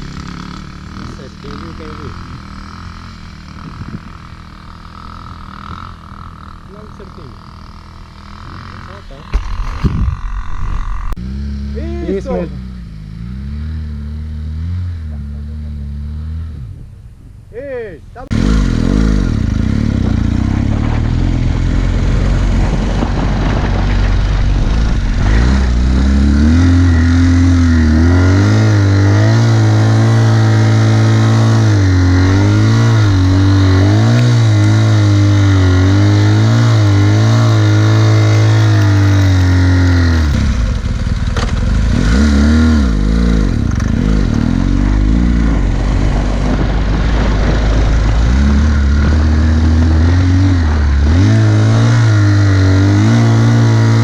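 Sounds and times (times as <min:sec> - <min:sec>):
motorcycle engine revving: 0:00.0 - 0:17.2, 0:18.2 - 0:54.0.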